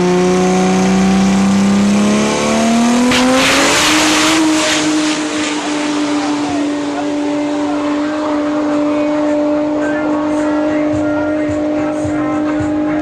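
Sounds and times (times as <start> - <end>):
race car engine at full throttle: 0.0 - 13.0.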